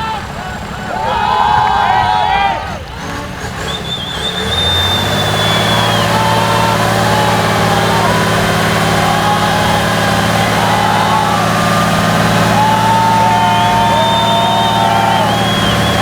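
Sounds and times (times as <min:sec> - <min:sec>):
truck diesel engine running: 0:00.0 - 0:16.0
high whine rising and falling: 0:04.7 - 0:16.0.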